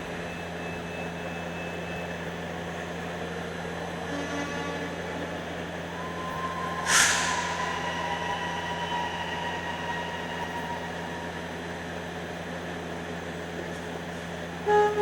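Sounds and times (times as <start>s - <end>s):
truck engine running: 0.0s - 15.0s
truck horn honk: 4.1s - 5.3s, 14.6s - 15.0s.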